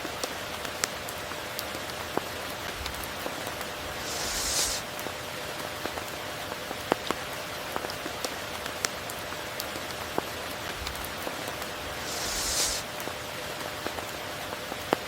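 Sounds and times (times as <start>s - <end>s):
steady rain falling: 0.0s - 15.0s
brief high hiss: 3.9s - 4.9s, 11.9s - 12.9s.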